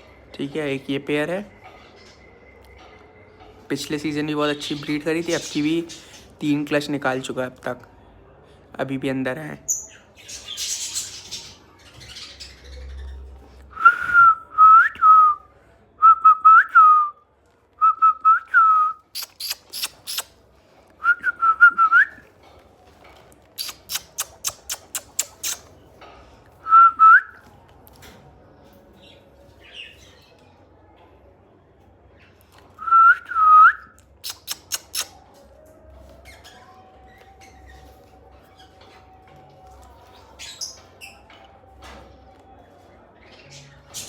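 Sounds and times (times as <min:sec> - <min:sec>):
sharp high clicks or chirps: 0:19.1 - 0:20.4, 0:23.6 - 0:25.7, 0:34.2 - 0:35.2.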